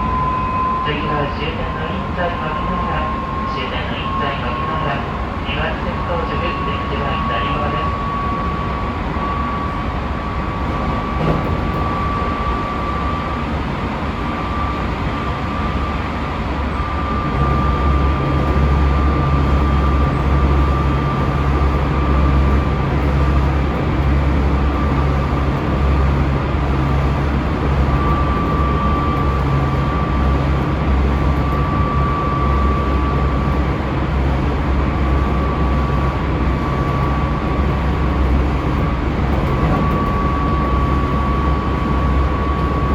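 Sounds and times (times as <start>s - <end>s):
thin high whine: 0.0s - 2.0s
train wheels rumbling on rail: 0.0s - 42.9s.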